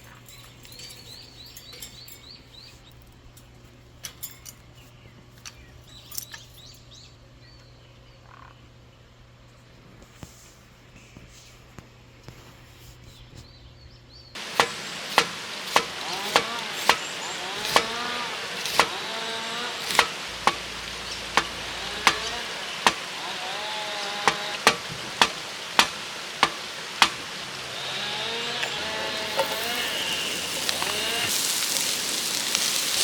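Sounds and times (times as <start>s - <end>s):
steady hiss: 14.4s - 33.0s.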